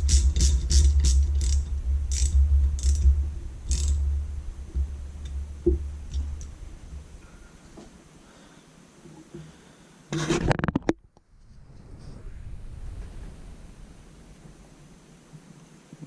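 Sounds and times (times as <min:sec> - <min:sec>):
ratchet clicking: 0:00.0 - 0:03.1, 0:03.7 - 0:04.1
steady low rumble: 0:00.0 - 0:08.3, 0:11.1 - 0:15.3.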